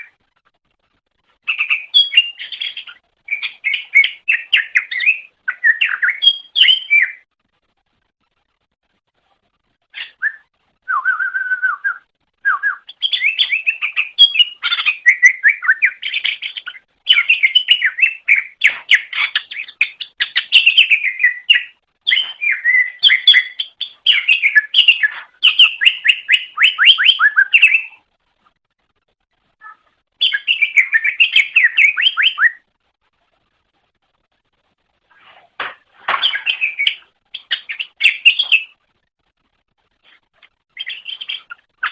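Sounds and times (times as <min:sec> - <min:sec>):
bird singing chirps and trills: 0:01.4 - 0:07.3, 0:09.9 - 0:28.0, 0:29.6 - 0:32.7, 0:36.2 - 0:38.8, 0:40.7 - 0:41.9.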